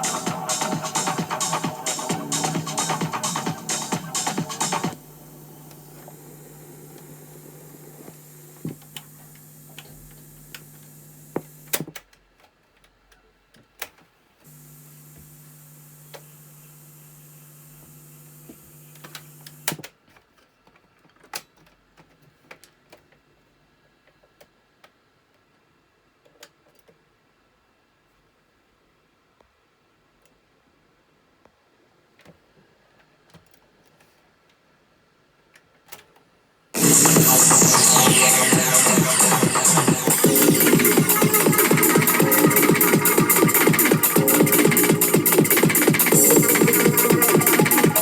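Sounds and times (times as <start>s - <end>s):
low speaker hum: 0.0s - 11.7s, 36.8s - 48.0s
speaker hiss: 0.0s - 11.8s, 14.5s - 19.9s, 36.8s - 48.0s.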